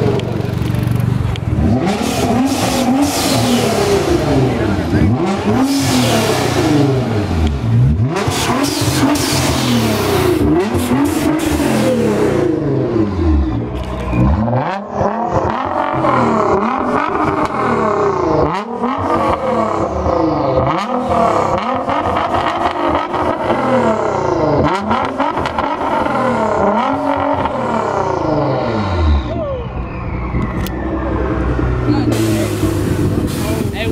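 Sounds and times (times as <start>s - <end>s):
car engines revving: 0.0s - 33.9s
loud hissing noise: 32.1s - 33.9s.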